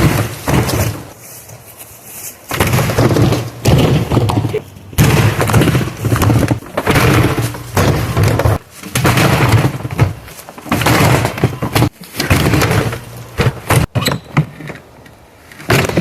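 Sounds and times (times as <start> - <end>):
dishwasher being smashed apart: 5.0 - 13.9.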